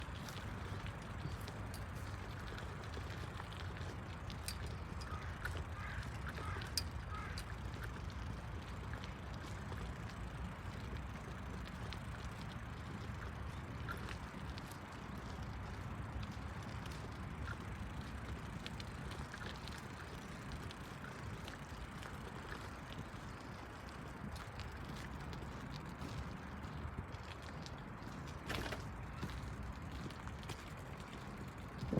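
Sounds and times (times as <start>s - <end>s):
faint clicks: 0.2s - 26.0s.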